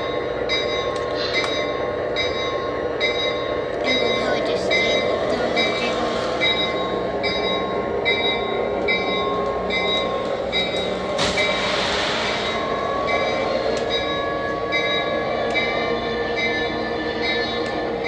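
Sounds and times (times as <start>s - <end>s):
locomotive bell ringing: 0.0s - 11.5s, 12.5s - 18.0s
air hiss: 11.2s - 12.7s.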